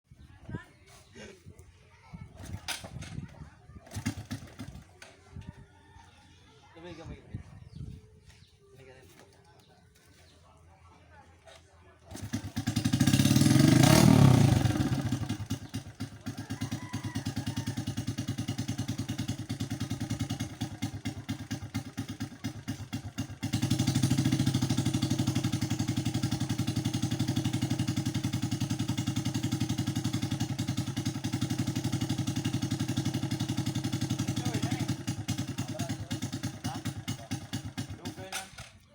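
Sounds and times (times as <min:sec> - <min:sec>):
engine starting and idling: 0:02.4 - 0:05.0, 0:12.1 - 0:38.9.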